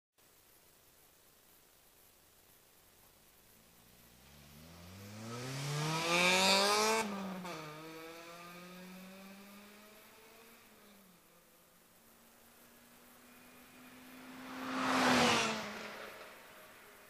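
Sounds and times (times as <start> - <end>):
car engine revving: 3.9 - 11.0, 12.5 - 17.0.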